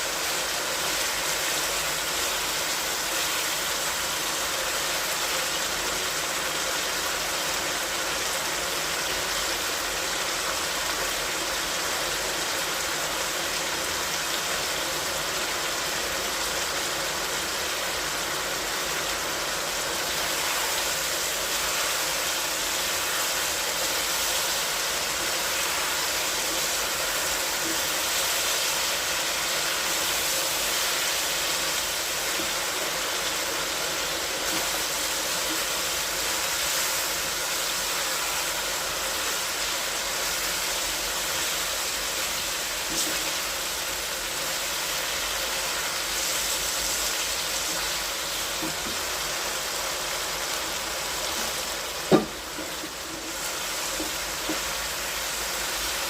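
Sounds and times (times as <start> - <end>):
steady hissing noise: 0.0 - 56.0
sharp knock: 52.1 - 52.4.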